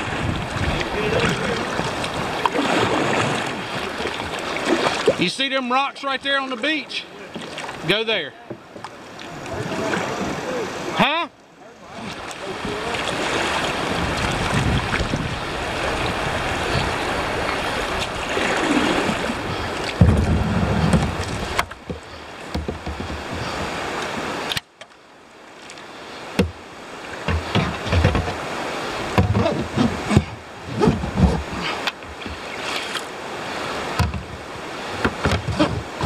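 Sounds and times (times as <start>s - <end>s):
river rapids rushing: 0.0s - 24.6s, 25.2s - 36.0s
low bumps and knocks: 19.4s - 23.8s, 27.2s - 28.4s, 29.1s - 32.4s, 34.0s - 36.0s.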